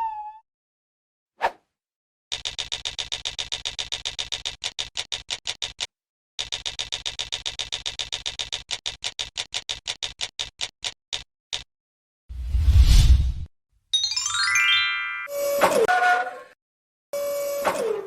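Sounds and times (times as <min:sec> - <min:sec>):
toy rapid mechanical ticking: 0:02.3 - 0:11.0.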